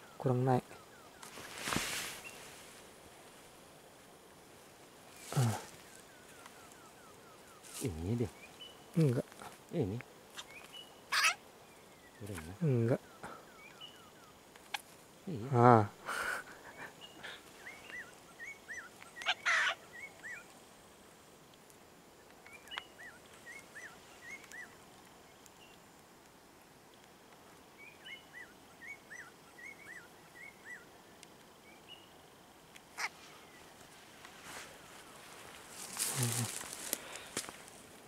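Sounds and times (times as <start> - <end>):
bird chirping: 5.1 - 15.4, 16.5 - 20.5, 22.4 - 25.8, 27.7 - 31.0.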